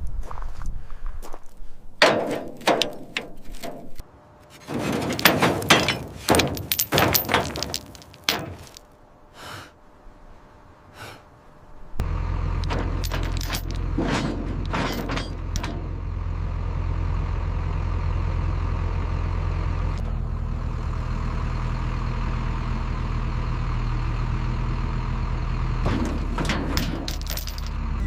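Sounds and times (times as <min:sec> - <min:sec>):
steel chains clanking against metal: 0:04.6 - 0:08.9, 0:12.6 - 0:16.0, 0:25.9 - 0:27.8.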